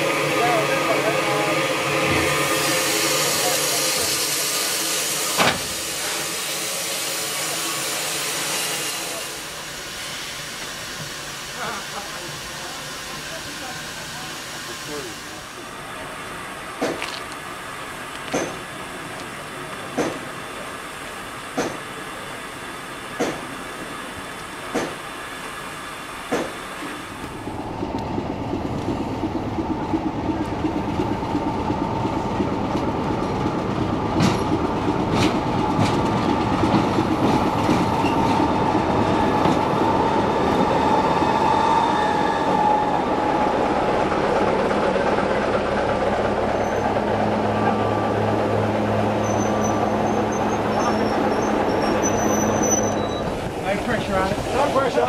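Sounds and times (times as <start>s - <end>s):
train wheels rumbling: 0.0s - 55.0s
wheel squeal: 46.6s - 47.0s, 49.2s - 53.4s.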